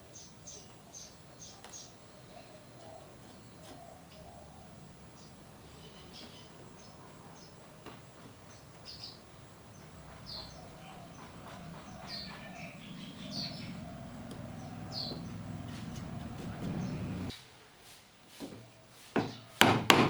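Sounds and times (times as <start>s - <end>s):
bird chirping: 8.5s - 17.3s
low steady rumble: 9.6s - 17.3s.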